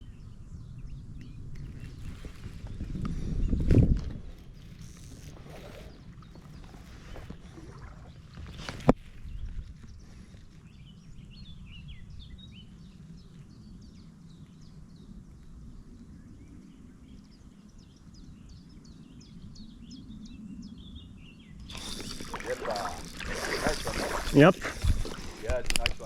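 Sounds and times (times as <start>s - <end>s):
small birds chirping: 16.4s - 26.0s.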